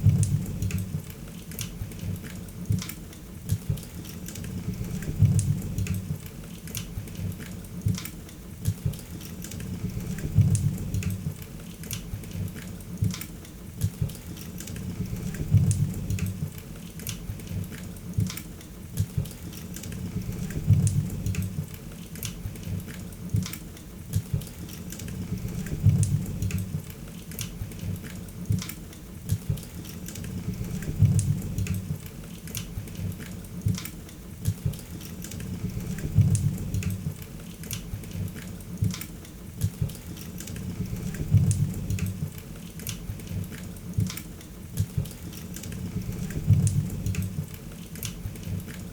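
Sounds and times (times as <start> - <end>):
low rumbling flame: 0.0 - 1.1, 4.6 - 6.2, 9.7 - 11.4, 14.8 - 16.6, 20.0 - 21.8, 25.2 - 26.9, 30.3 - 32.0, 35.5 - 37.2, 40.6 - 42.4, 45.8 - 47.5.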